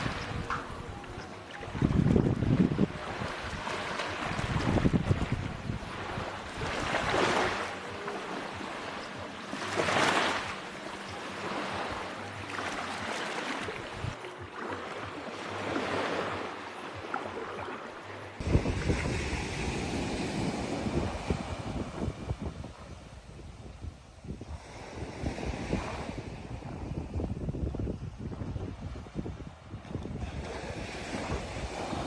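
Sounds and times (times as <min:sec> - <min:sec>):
wind on microphone: 0:00.0 - 0:07.7, 0:13.6 - 0:14.2, 0:18.4 - 0:32.0
waves breaking on a beach: 0:00.0 - 0:32.0.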